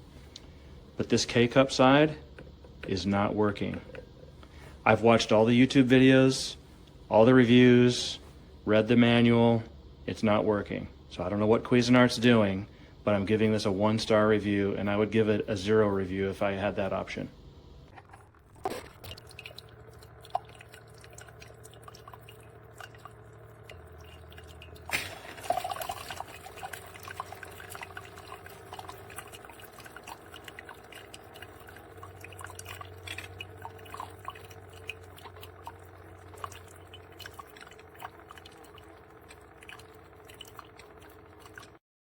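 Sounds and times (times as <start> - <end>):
coffee maker humming: 0.0 - 41.8
water dripping: 18.8 - 41.8
small irregular ticks: 25.7 - 41.8.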